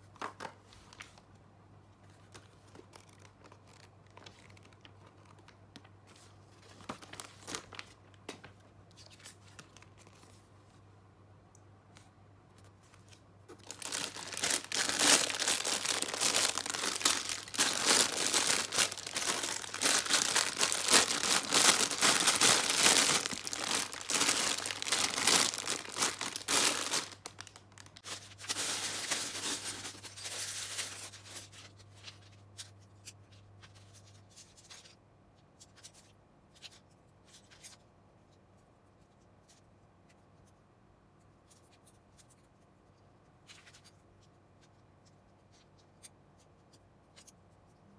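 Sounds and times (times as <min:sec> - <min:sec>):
plastic bags tearing and crinkling: 0:06.8 - 0:07.8, 0:13.5 - 0:31.5.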